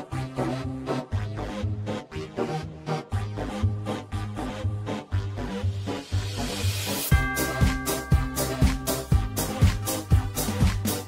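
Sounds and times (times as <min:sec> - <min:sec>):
upbeat music with bass line: 0:00.0 - 0:11.0.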